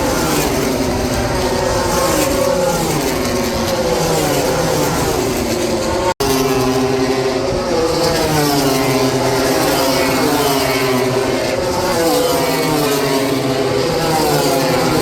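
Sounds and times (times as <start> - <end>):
racing motorcycles high-revving: 0.0 - 15.0.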